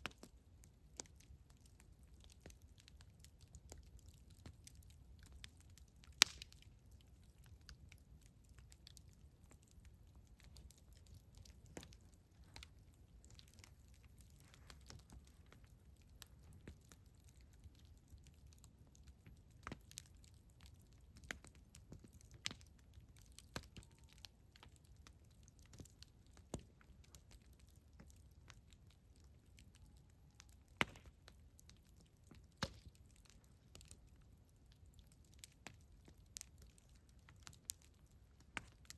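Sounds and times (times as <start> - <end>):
burning wood popping: 0.0 - 38.9
campfire wood crackling: 0.0 - 38.9.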